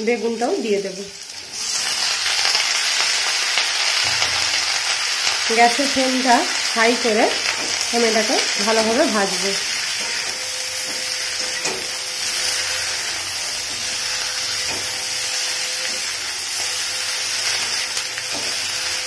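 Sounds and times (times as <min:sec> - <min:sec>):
vegetables sizzling in hot oil: 0:00.0 - 0:19.0
metal spatula tapping and scraping pan: 0:17.4 - 0:18.7.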